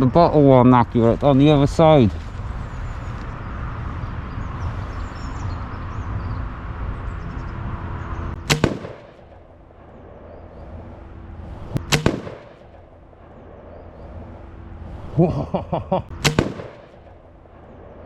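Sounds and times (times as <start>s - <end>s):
air rifle shots cracking: 8.4s - 10.0s, 11.8s - 13.4s, 16.1s - 17.6s.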